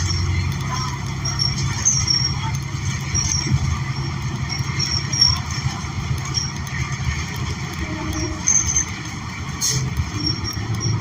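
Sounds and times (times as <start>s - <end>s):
bus engine low rumble: 0.0s - 11.0s.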